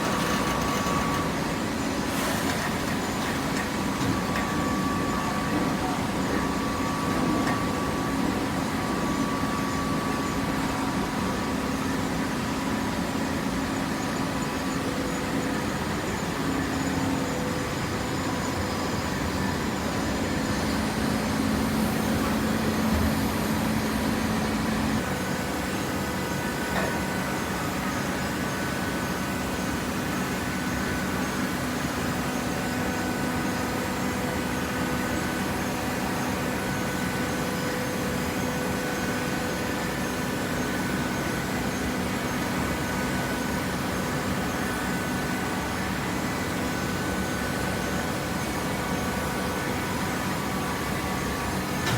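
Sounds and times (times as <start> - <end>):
baler machine humming: 19.1 - 29.7.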